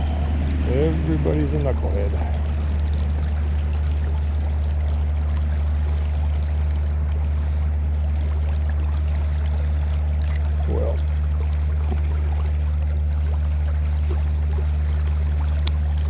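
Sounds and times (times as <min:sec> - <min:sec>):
stream rushing: 0:00.0 - 0:07.9.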